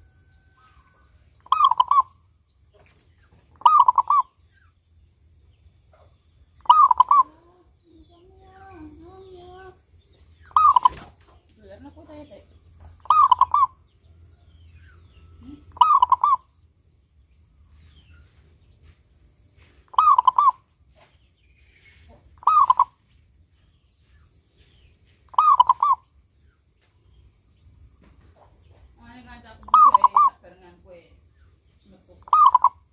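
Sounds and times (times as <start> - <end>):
dove cooing: 1.5 - 2.1, 3.6 - 4.3, 6.6 - 7.5, 10.5 - 11.2, 13.0 - 13.8, 15.4 - 16.4, 19.9 - 20.6, 22.4 - 23.0, 25.3 - 26.0, 29.6 - 30.3, 32.2 - 32.8.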